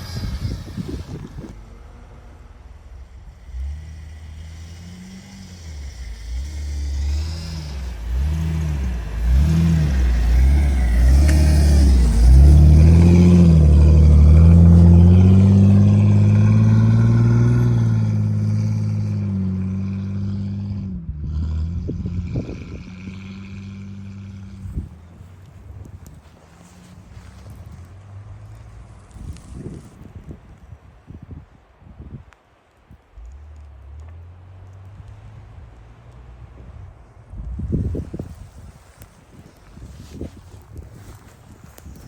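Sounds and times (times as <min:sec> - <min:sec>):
engine revving: 0:00.0 - 0:29.8.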